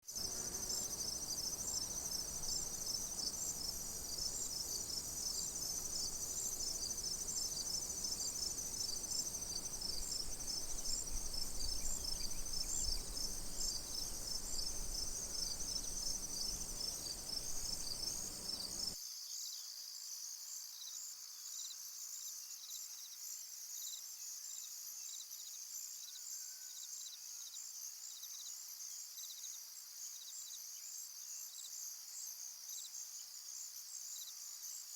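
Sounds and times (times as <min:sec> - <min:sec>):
crickets chirping: 0:00.1 - 0:19.0
low background rumble: 0:05.4 - 0:19.0.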